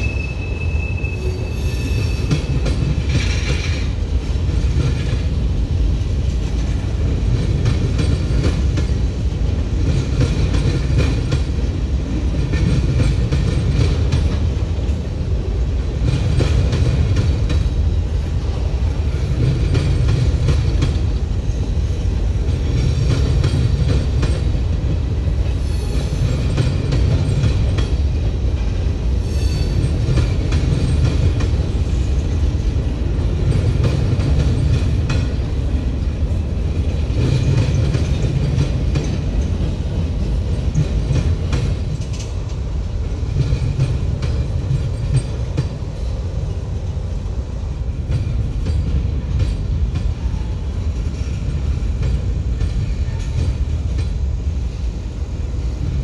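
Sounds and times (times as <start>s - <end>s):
freight train rumbling past: 0.0s - 56.0s
wheels clicking over rail joints: 6.2s - 15.1s, 22.1s - 28.9s, 29.7s - 46.1s.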